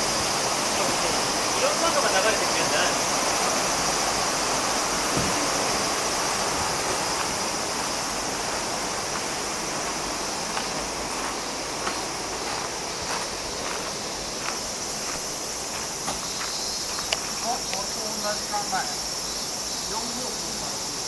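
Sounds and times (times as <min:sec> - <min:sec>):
river water rushing: 0:00.0 - 0:19.1.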